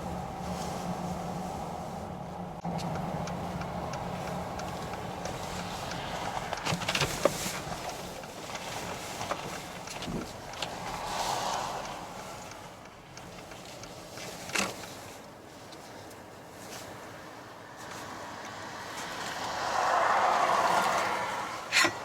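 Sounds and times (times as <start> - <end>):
car engine humming inside cabin: 0.0 - 15.4.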